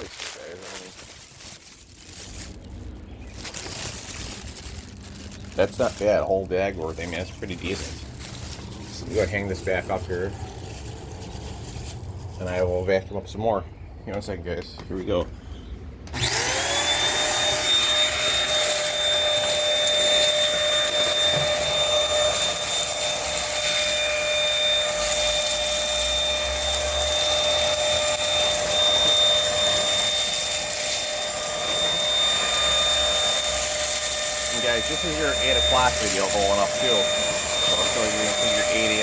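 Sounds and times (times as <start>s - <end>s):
stick vacuum running with high whine: 5.4s - 10.5s, 16.0s - 39.0s.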